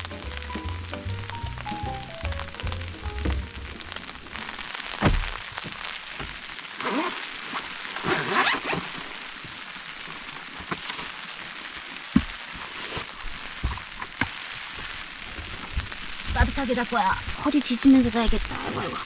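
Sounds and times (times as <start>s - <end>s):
rustling of someone moving: 0.0s - 18.0s
knocks: 0.1s - 4.0s
heavy rain on a car: 3.8s - 8.1s, 8.8s - 18.5s.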